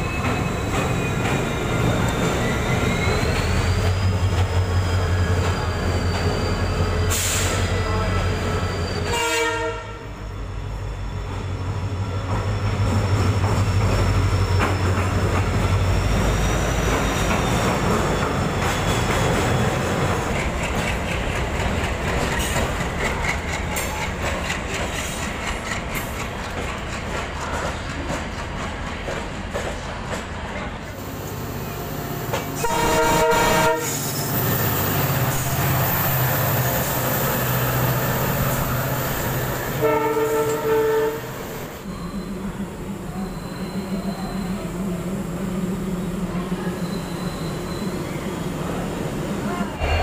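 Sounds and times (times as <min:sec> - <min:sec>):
high squeal from wheels: 0:00.0 - 0:21.4, 0:31.0 - 0:44.9, 0:46.3 - 0:50.0
diesel locomotive engine rumble: 0:00.0 - 0:50.0
train wheels clattering over rail joints: 0:16.5 - 0:30.6.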